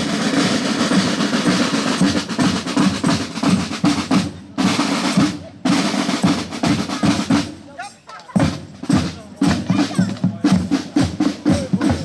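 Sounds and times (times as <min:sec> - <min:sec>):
snare drums rattling and rolling: 0:00.0 - 0:12.0.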